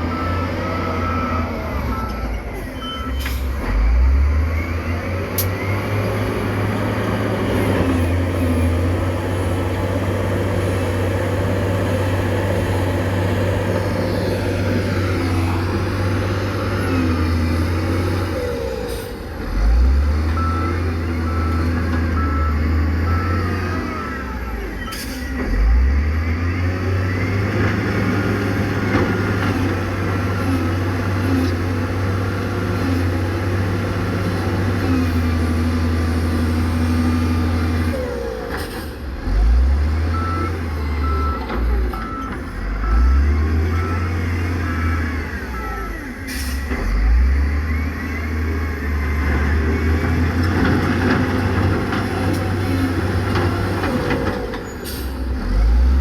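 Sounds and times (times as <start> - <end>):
high reversing beeps: 0.0 - 6.0, 20.3 - 27.4, 40.1 - 50.1
diesel engine of heavy machinery: 0.0 - 56.0.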